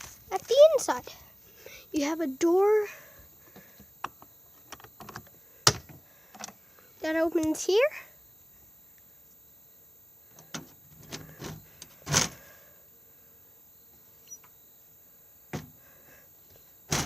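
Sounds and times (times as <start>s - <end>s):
door scraping: 10.5s - 12.4s, 15.6s - 15.8s.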